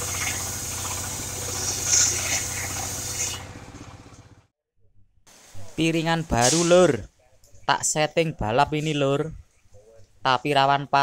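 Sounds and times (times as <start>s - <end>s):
spinning saw blade hiss: 0.0s - 3.5s
sawmill engine pulse: 0.0s - 4.5s.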